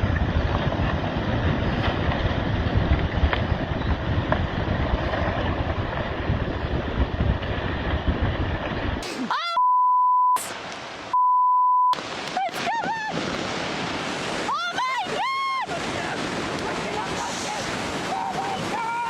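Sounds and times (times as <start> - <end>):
wind rumbling on microphone: 0.0 - 9.0, 12.1 - 19.0
censor bleeps: 9.4 - 10.5, 11.1 - 12.0.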